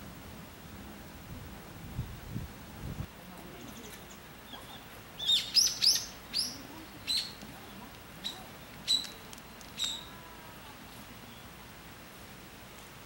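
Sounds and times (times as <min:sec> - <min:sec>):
bird chirping: 0:03.5 - 0:11.6.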